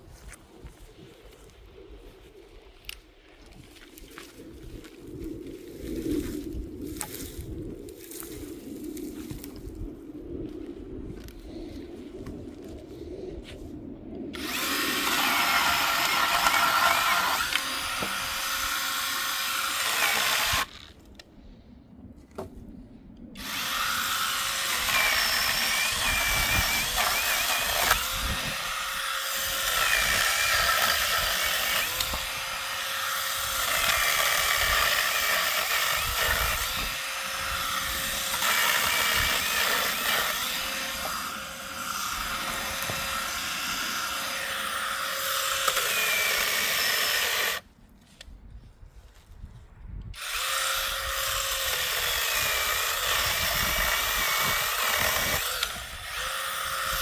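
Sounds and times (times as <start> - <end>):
power saw cutting wood: 14.4 - 20.9, 23.4 - 47.6, 50.2 - 57.0.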